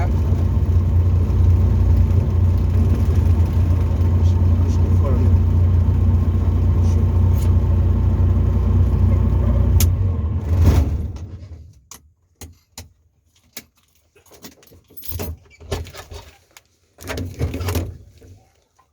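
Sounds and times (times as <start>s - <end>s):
light aircraft engine running: 0.0s - 11.5s.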